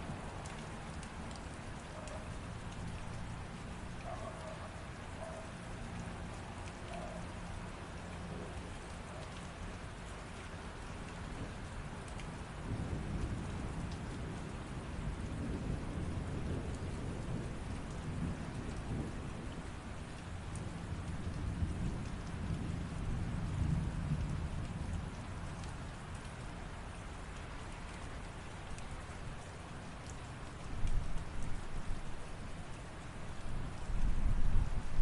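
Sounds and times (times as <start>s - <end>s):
rain falling: 0.0s - 35.0s
thunder rumbling: 12.6s - 19.8s.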